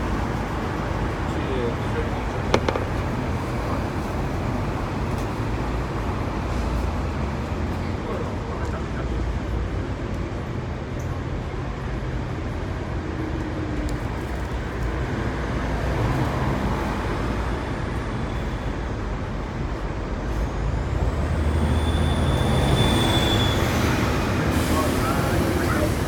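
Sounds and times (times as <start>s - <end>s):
tram rumbling: 15.0s - 26.0s
high squeal: 21.8s - 25.2s.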